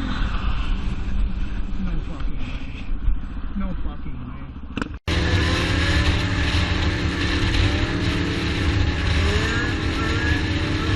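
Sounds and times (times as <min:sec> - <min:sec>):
road noise: 0:00.0 - 0:10.9
vehicle engine running: 0:04.8 - 0:10.9.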